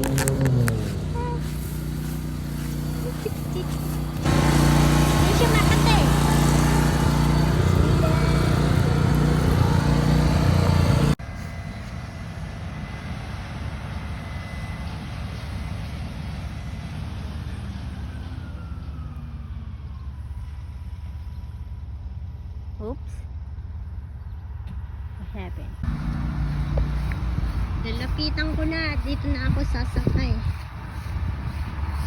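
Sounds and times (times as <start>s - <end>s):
diesel engine droning: 0.0s - 11.8s, 25.8s - 32.0s
distant machinery rumble: 0.0s - 11.8s, 23.6s - 32.0s.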